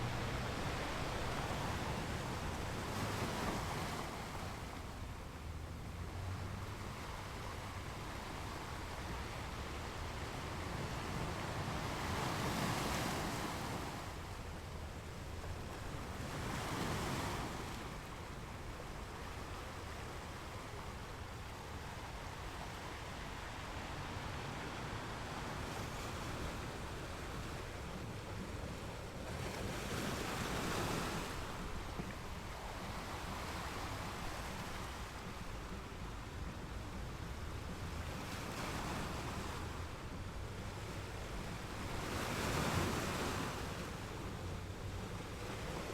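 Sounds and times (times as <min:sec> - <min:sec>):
ocean waves breaking: 0:00.0 - 0:45.9.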